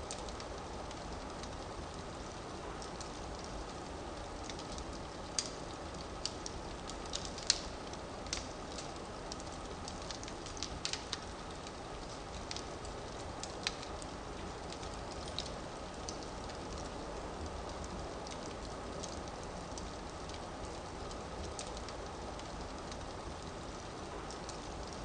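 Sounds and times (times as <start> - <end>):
fire burning in a fireplace: 0.0 - 25.0
fire crackling and popping: 0.0 - 25.0.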